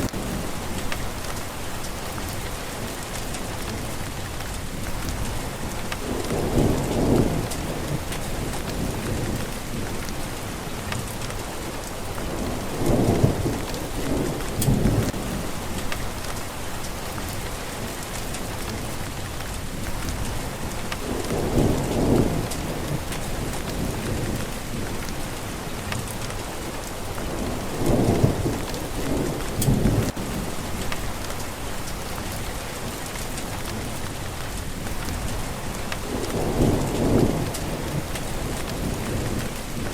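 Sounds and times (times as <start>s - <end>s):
thunder rolling: 0.0s - 3.9s, 4.6s - 32.4s, 33.4s - 39.9s
rain falling: 0.0s - 39.9s.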